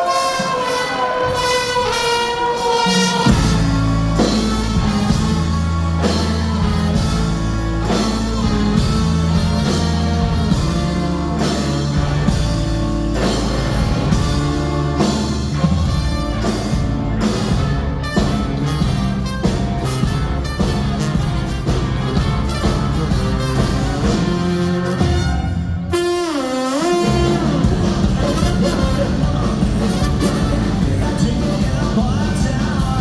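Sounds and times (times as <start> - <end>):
ska punk band playing live: 0.0 - 33.0
person singing: 26.8 - 33.0.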